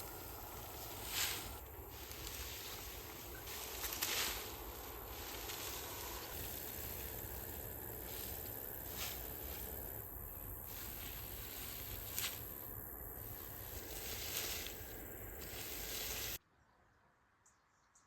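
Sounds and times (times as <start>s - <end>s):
faint steady hiss: 0.0s - 16.4s.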